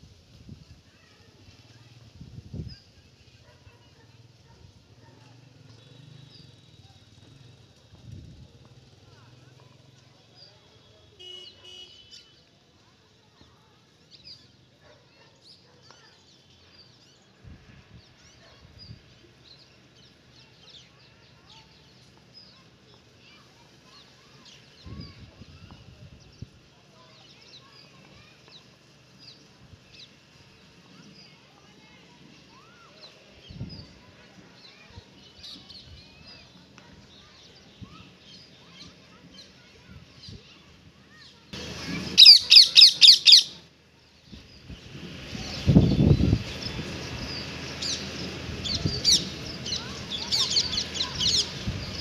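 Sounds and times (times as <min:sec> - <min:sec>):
birds chirping: 0:11.2 - 0:12.4, 0:18.0 - 0:52.0
birds chirping and whistling: 0:41.6 - 0:43.6, 0:44.3 - 0:52.0.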